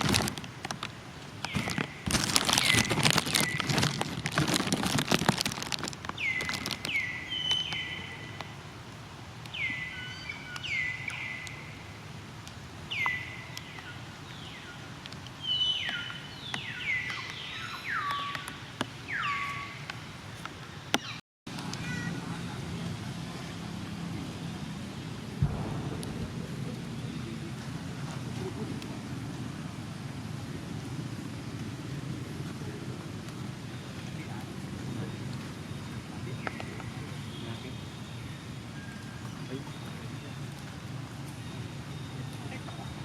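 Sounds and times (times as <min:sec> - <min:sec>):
rustling and pattering: 0:00.0 - 0:07.6.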